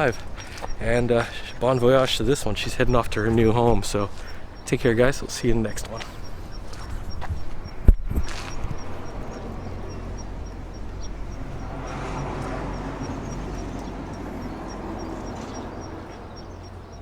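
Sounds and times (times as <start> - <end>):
low engine hum: 0.0 - 17.0
vehicle passing by: 5.8 - 17.0.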